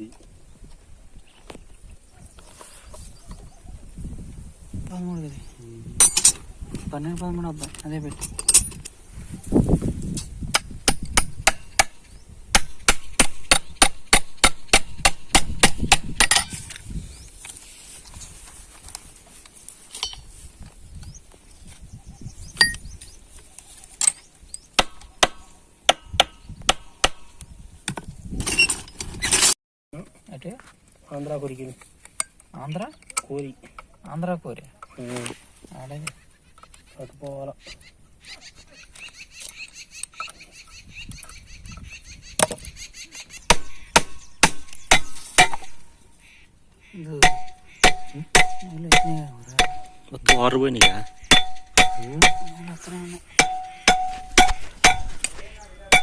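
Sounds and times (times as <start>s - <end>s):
metal scraping and rattling: 28.4s - 29.6s
hammer striking metal: 43.5s - 45.8s, 47.2s - 52.6s, 53.4s - 56.0s.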